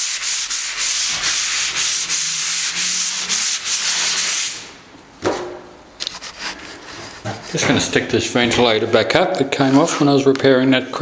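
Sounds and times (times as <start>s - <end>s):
hand sanding plaster: 0.0s - 4.7s, 6.1s - 7.6s.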